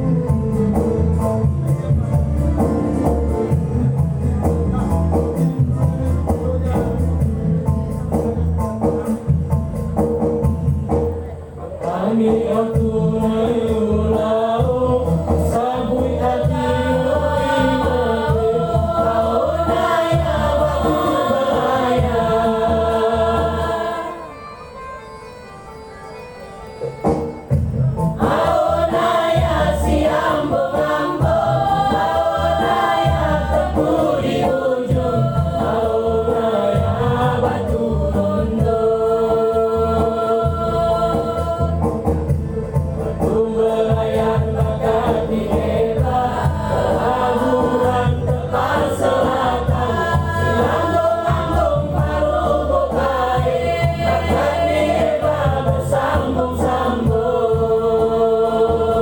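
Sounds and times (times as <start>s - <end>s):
low instrumental accompaniment: 0.0s - 59.0s
choir singing held chords: 11.6s - 24.6s, 28.0s - 59.0s.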